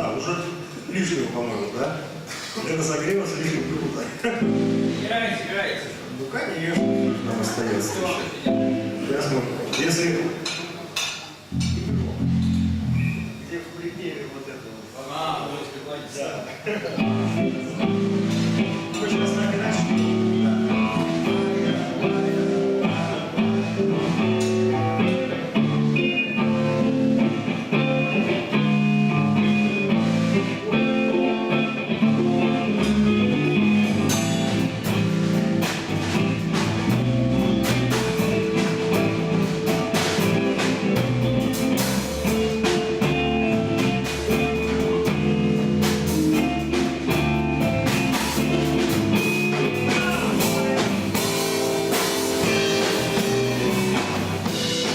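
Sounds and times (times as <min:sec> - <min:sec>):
electric guitar: 0:03.7 - 0:05.1, 0:06.8 - 0:09.2, 0:11.4 - 0:13.5, 0:16.9 - 0:54.9
bass guitar: 0:04.3 - 0:05.1, 0:06.8 - 0:09.2, 0:11.5 - 0:13.5, 0:17.0 - 0:54.9
drums with cymbals: 0:09.8 - 0:13.8, 0:17.0 - 0:54.9.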